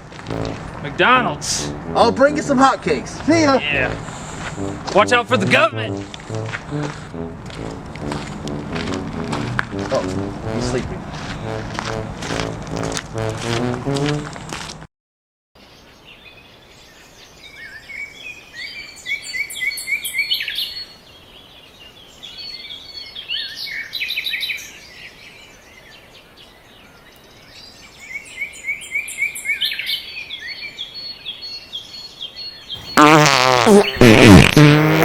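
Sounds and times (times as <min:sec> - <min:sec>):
loud wobbling buzz: 0:00.0 - 0:14.7, 0:32.8 - 0:35.0
faint outdoor background noise: 0:00.0 - 0:14.8, 0:15.6 - 0:35.0
small birds chirping: 0:29.2 - 0:34.9.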